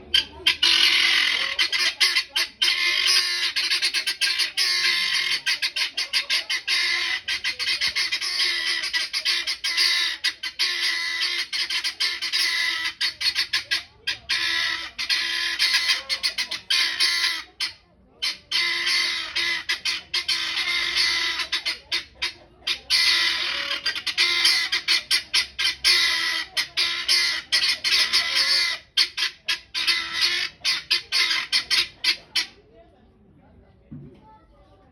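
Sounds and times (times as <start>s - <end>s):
guinea fowl cackling: 0.0s - 32.6s.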